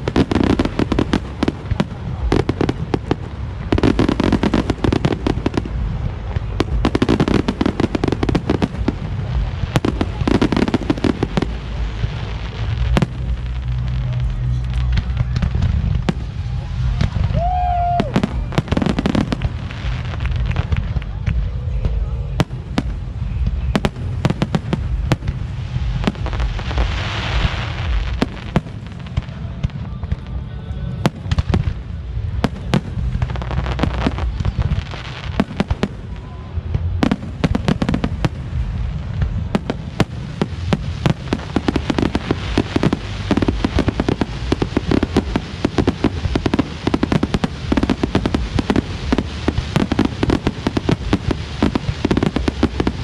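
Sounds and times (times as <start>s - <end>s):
fireworks bangs and crackles: 0.0s - 53.0s.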